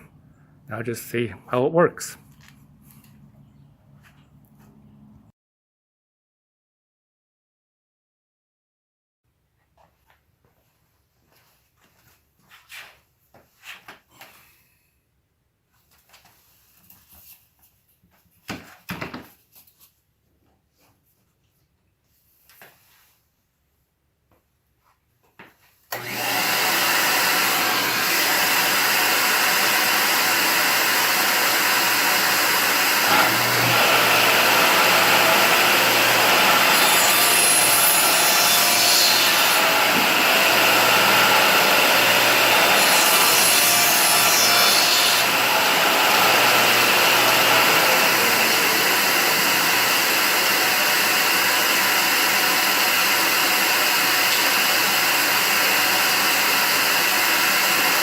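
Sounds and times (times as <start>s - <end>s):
shop vac running: 25.9s - 58.0s
table saw motor hum: 25.9s - 58.0s.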